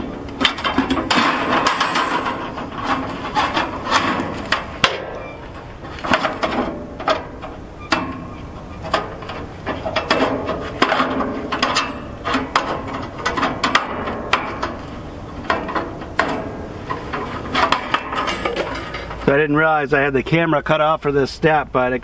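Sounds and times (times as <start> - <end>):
blade scraping and rubbing: 1.4 - 6.8.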